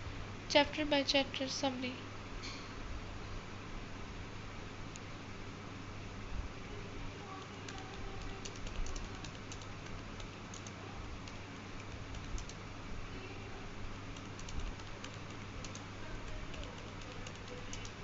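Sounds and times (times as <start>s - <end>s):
low hum and hiss: 0.0s - 18.0s.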